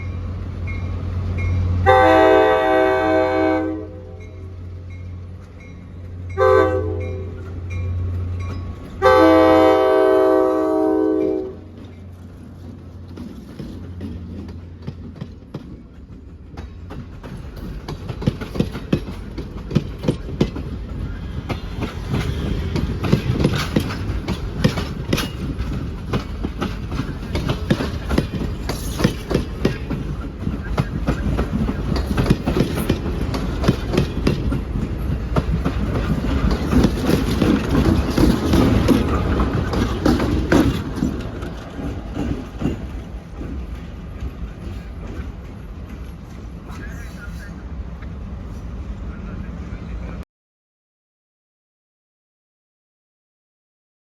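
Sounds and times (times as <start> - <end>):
train rumbling by: 0.0 - 50.2
locomotive horn blast: 1.8 - 4.4, 6.4 - 7.4, 9.0 - 11.7
wheels clacking over rail joints: 11.4 - 47.0.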